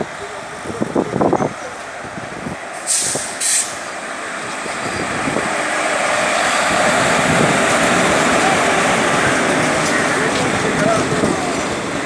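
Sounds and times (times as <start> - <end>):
rumble of moving train: 0.0 - 12.0
train hisses: 2.7 - 4.0.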